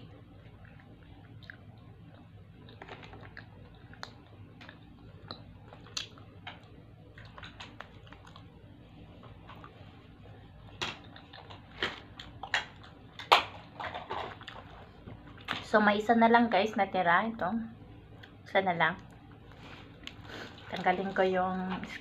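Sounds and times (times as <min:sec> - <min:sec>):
wet mouth clicks and smacks: 0:01.2 - 0:06.3.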